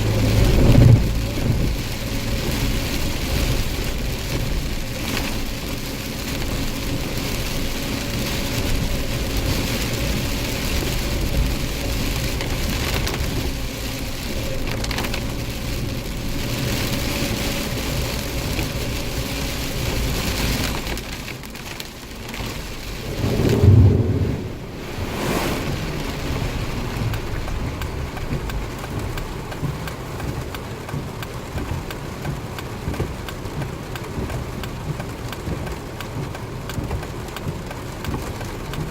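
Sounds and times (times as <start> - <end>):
thunder rumbling: 0.0 - 4.6, 22.8 - 28.7
heavy rain falling: 0.0 - 38.9.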